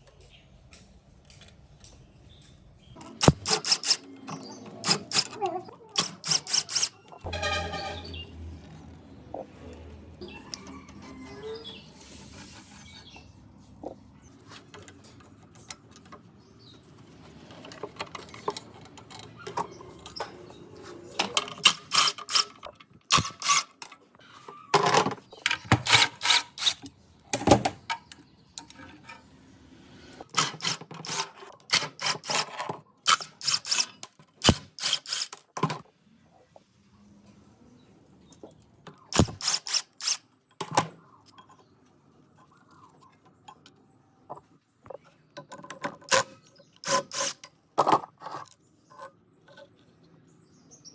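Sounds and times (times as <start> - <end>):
ratchet ratcheting: 3.0 - 4.1, 4.8 - 5.4, 6.0 - 7.0
clicking of hand tools: 3.0 - 7.1.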